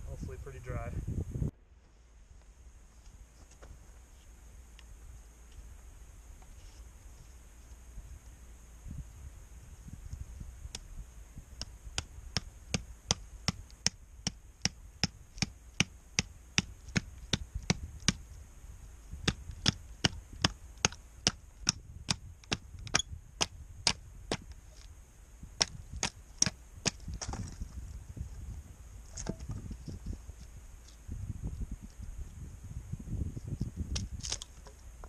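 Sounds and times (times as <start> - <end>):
faint high hiss: 0.0 - 26.8.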